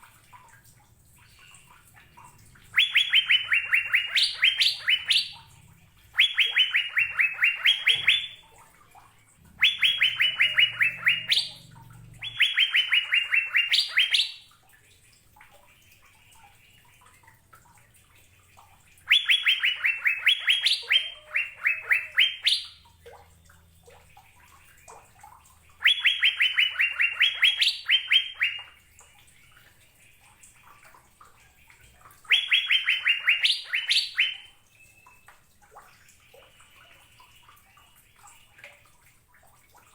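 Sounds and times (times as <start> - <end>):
bird singing clear notes: 2.6 - 8.5, 9.6 - 14.5, 19.0 - 22.9, 25.8 - 28.8, 32.3 - 35.3.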